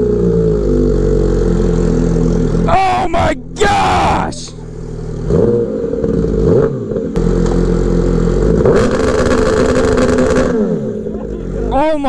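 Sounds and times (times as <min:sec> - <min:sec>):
motorcycle engine hitting rev limiter: 0:04.6 - 0:11.1.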